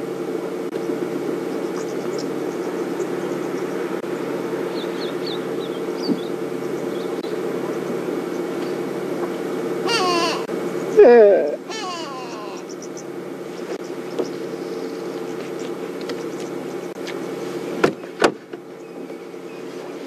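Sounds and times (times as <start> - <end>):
low droning hum: 0.0 - 20.0
high bird chirps: 11.7 - 15.4.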